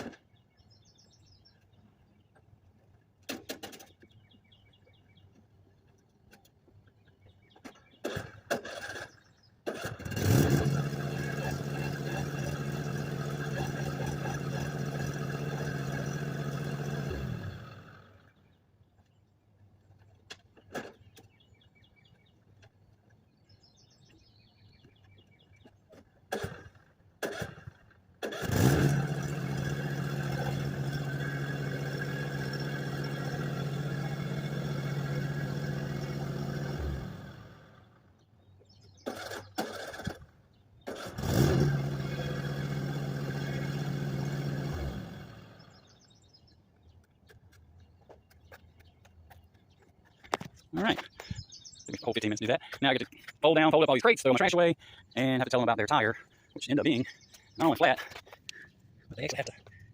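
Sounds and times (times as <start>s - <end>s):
lawn mower engine running: 8.0s - 18.2s, 26.3s - 38.0s, 39.0s - 46.2s.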